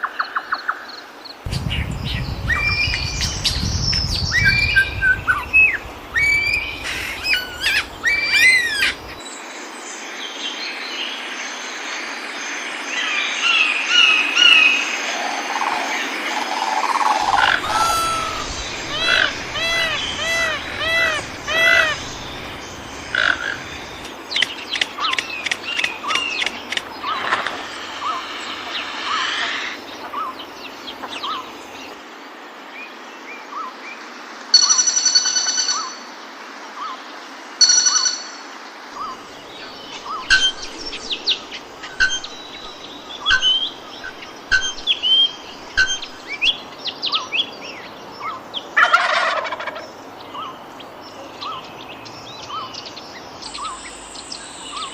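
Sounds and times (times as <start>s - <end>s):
forest background hiss: 0.0s - 54.9s
birds chirping and whistling: 1.5s - 9.2s, 16.8s - 29.2s, 39.0s - 46.7s
loud harsh bird calls: 1.5s - 9.2s, 16.6s - 31.8s.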